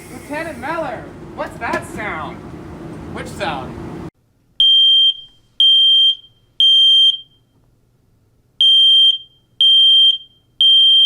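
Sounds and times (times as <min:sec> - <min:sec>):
smoke alarm beeping: 0:04.6 - 0:07.5, 0:08.6 - 0:11.0.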